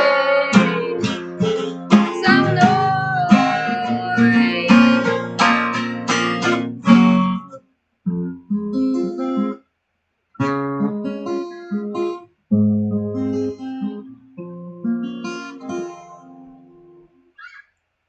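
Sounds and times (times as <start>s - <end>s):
person singing: 0.0s - 5.5s
acoustic guitar playing: 0.0s - 9.6s, 10.4s - 17.3s.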